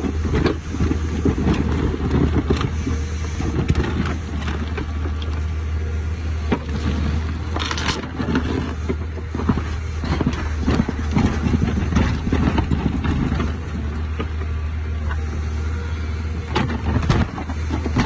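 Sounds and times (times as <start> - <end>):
excavator diesel engine running: 0.0 - 18.0
rough grinding noise: 0.0 - 18.0.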